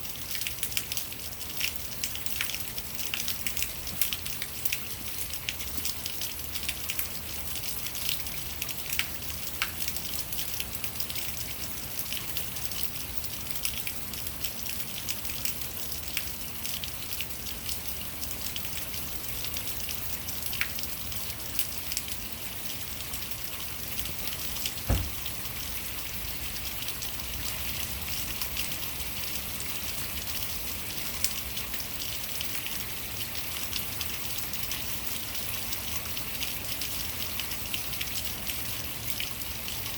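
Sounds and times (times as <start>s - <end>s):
sharp knock: 24.9s - 25.3s.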